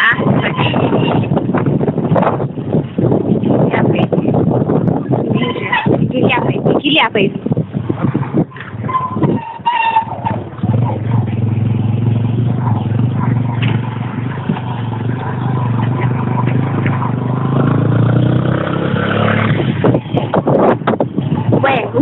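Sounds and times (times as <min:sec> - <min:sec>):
motorcycle engine droning: 0:07.9 - 0:21.7.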